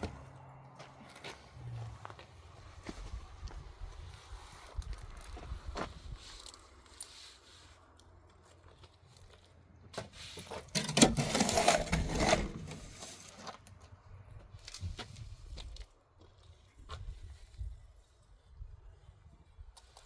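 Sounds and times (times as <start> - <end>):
scraping and rustling: 10.0 - 13.7.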